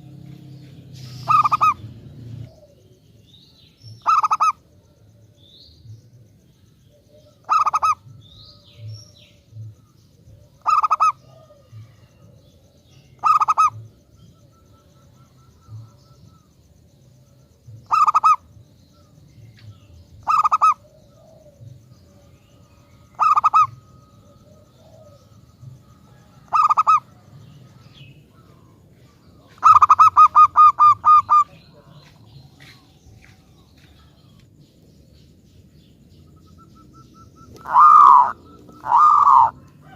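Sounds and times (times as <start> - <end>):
dove cooing: 0.0 - 3.0, 4.0 - 5.0, 6.9 - 8.9, 10.2 - 16.6, 17.8 - 18.5, 20.2 - 32.8, 36.2 - 39.9.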